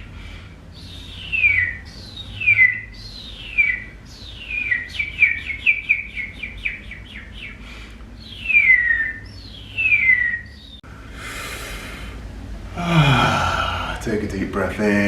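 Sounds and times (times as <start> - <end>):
breathy hiss: 10.9 - 14.2.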